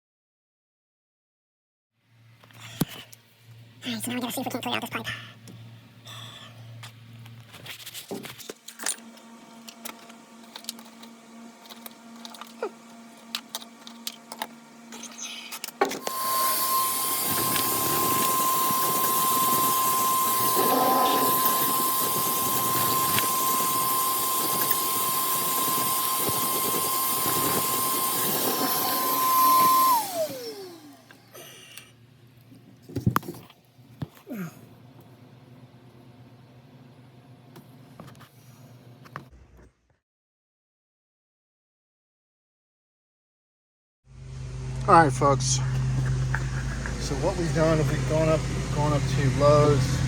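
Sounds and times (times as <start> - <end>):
shop vacuum running: 8.7 - 31.8, 44.1 - 50.0.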